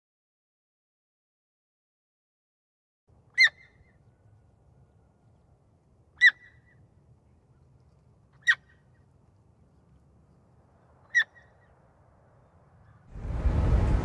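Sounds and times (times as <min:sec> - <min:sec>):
faint low rumble: 0:06.9 - 0:14.0.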